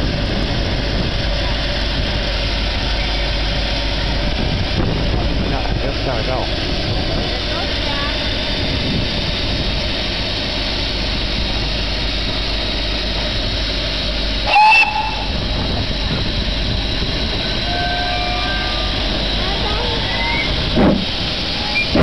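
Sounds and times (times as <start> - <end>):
train running noise: 0.0 - 22.0
steam whistle blast: 14.4 - 15.4, 17.6 - 19.0.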